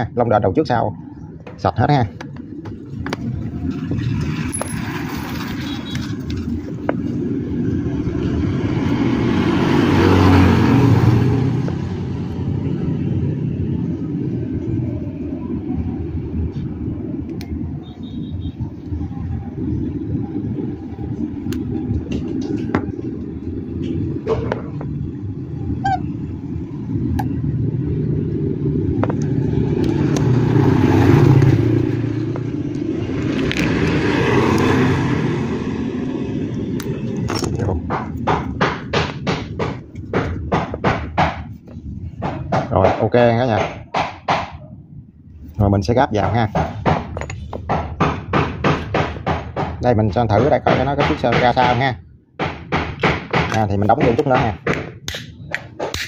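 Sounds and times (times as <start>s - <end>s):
low rumble of passing traffic: 0.0s - 56.0s.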